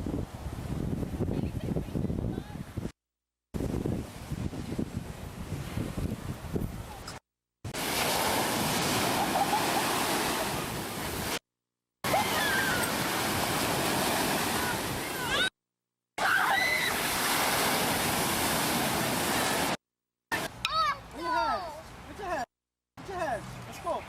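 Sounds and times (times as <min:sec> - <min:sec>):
ocean surf breaking: 0:07.7 - 0:11.4, 0:12.0 - 0:15.5, 0:16.2 - 0:20.5.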